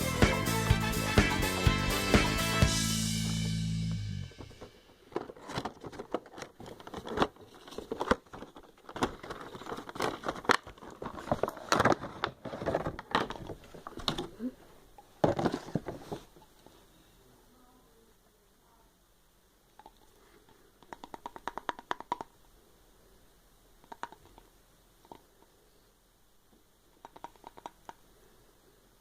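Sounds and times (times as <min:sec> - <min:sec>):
toy box rustling and crinkling: 0:04.4 - 0:14.4, 0:15.0 - 0:16.7.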